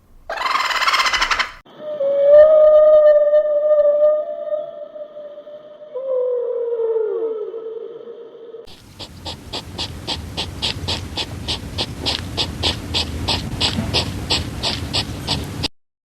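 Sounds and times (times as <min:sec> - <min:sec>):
dog panting rapidly: 0:08.7 - 0:15.7.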